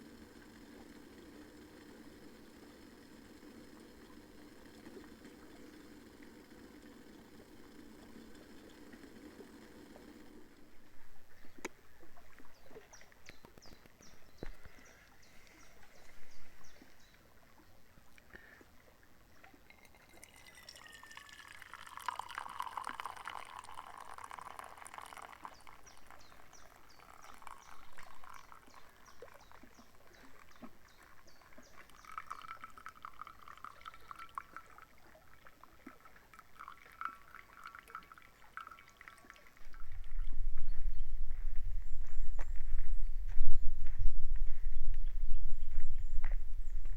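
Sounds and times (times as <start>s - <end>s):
liquid pouring and splashing: 19.5s - 40.3s.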